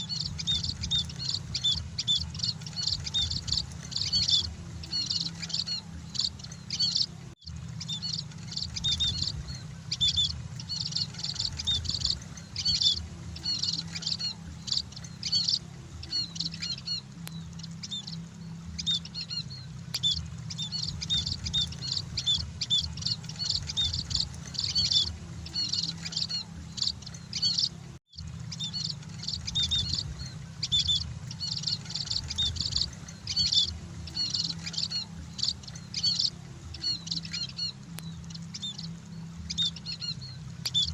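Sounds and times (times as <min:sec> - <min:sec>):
finches chirping: 0:00.0 - 0:40.9
steady low hum: 0:00.0 - 0:40.9.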